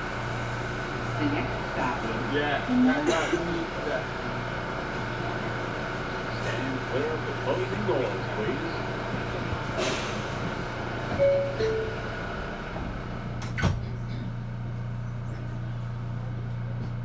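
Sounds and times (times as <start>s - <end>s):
subway car low hum: 0.0s - 17.0s
two-note falling door chime: 11.2s - 12.0s.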